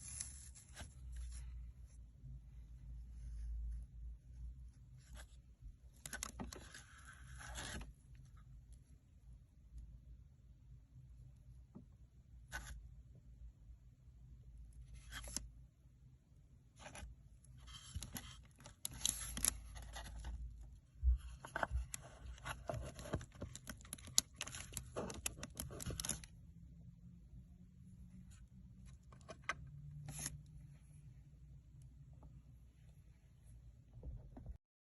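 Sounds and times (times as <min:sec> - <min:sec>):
rustling and scraping handling noises: 0:00.0 - 0:04.1, 0:16.7 - 0:26.4.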